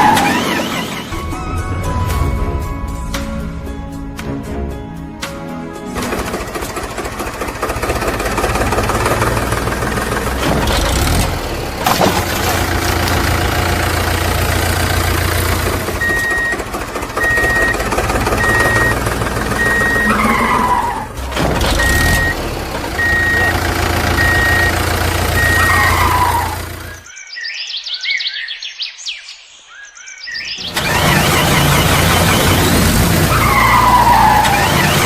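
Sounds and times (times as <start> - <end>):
heavy vehicle engine running: 0.0 - 27.1, 30.6 - 35.0
reversing alarm beeping: 15.9 - 21.1, 21.7 - 27.1.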